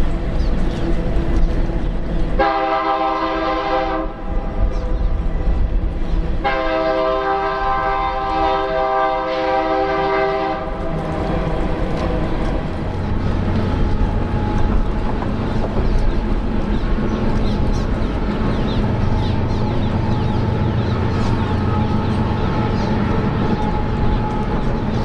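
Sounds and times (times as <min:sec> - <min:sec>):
passing train rumble: 0:00.0 - 0:25.0
locomotive air horn blasts: 0:02.4 - 0:04.2, 0:06.4 - 0:11.0.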